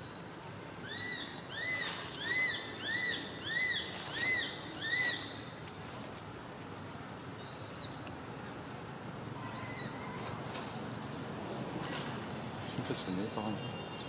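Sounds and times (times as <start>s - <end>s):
steady low hiss: 0.0s - 9.4s.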